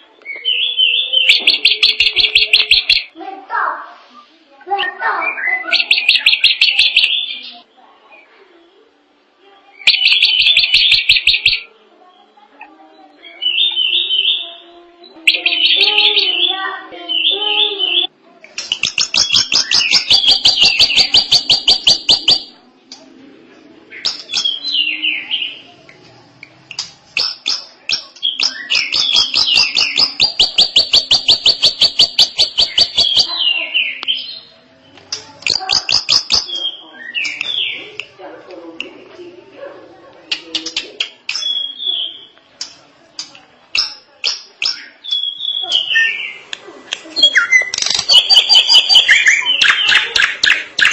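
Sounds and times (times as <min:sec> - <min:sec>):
drongo singing: 0:12.6 - 0:23.0.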